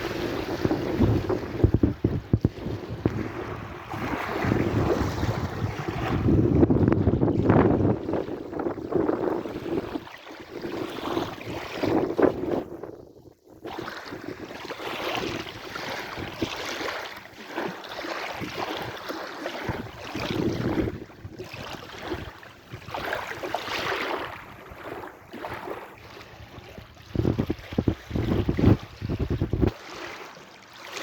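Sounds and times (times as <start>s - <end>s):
sea waves washing: 0.0s - 12.7s.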